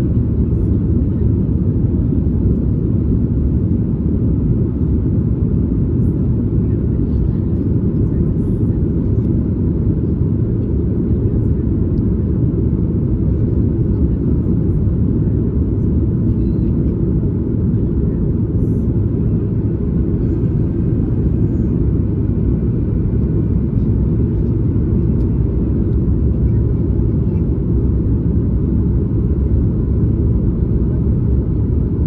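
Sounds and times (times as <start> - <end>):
airplane cabin engine rumble: 0.0 - 32.0.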